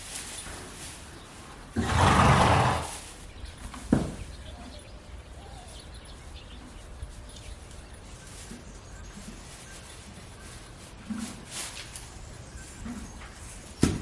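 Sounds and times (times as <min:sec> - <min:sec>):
horse snorting: 0:01.8 - 0:03.0.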